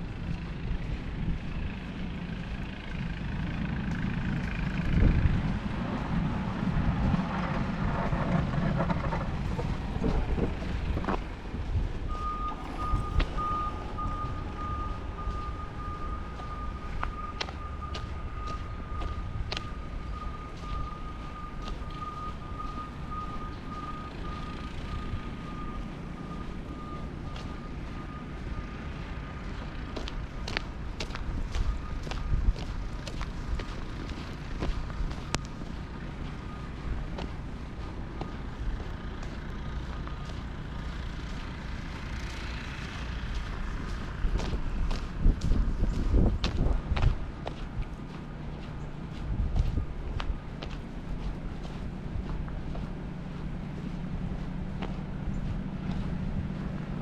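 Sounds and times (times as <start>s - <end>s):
truck engine rumbling: 0.0s - 57.0s
reversing alarm beeping: 12.0s - 45.0s.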